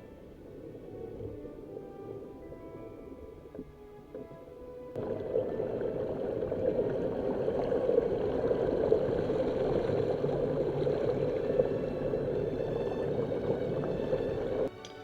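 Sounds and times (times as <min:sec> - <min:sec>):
background music: 0:00.0 - 0:15.0
rushing gurgling water: 0:05.0 - 0:14.7.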